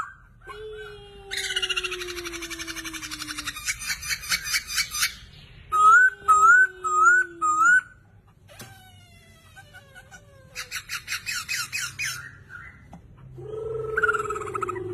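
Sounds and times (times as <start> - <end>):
songbird whistling and trilling: 10.6 - 12.9.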